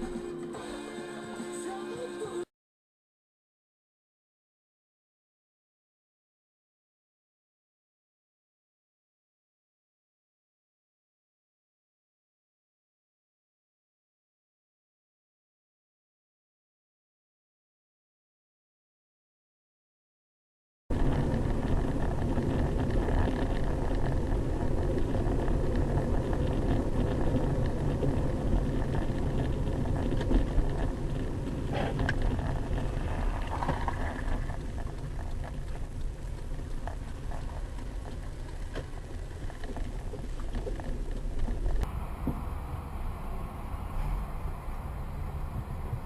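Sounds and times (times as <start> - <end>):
car road and engine noise: 20.9 - 46.0.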